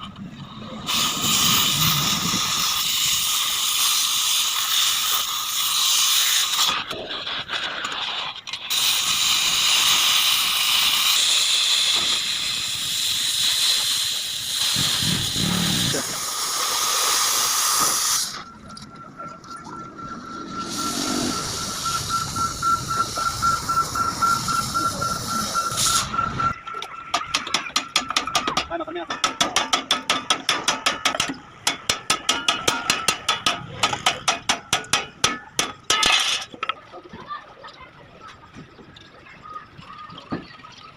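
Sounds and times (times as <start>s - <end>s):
gas cutting torch hissing: 0.8s - 7.0s, 8.7s - 18.5s, 20.2s - 26.4s
thin steady high tone: 15.0s - 29.3s
rapid metallic tapping: 27.1s - 36.2s.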